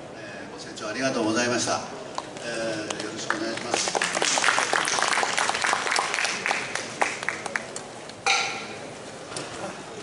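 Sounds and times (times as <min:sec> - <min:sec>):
audience applauding: 0:03.0 - 0:07.8.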